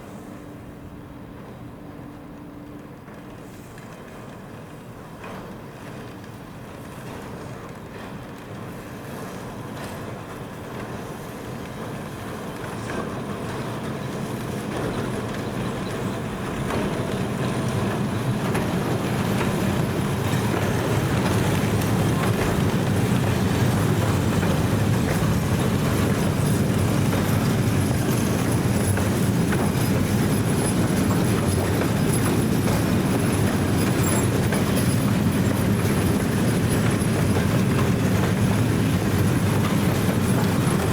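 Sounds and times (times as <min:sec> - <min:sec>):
train wheels rumbling on track: 0:00.0 - 0:40.9.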